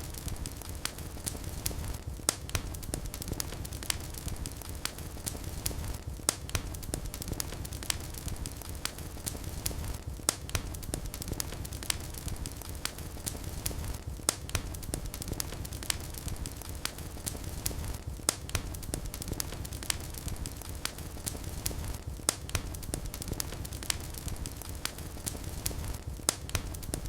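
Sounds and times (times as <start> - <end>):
fire crackling in a fireplace: 0.0 - 27.0.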